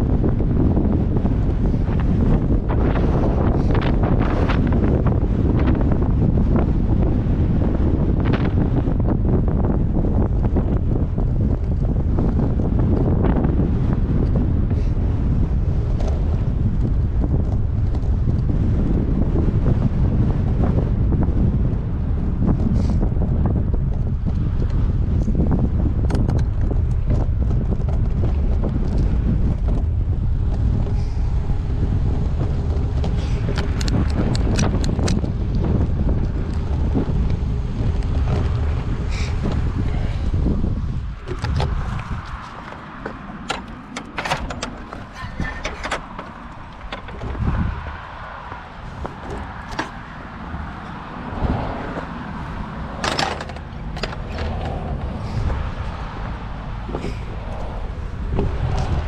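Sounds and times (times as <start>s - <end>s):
bike clicks and rattles: 0.0s - 59.0s
wind rushing over microphone: 0.0s - 59.0s
tyres rolling on gravel: 31.5s - 59.0s.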